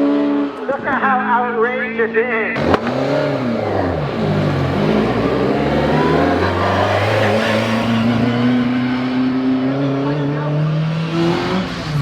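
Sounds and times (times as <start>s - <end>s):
rally car engine accelerating: 2.6s - 12.0s.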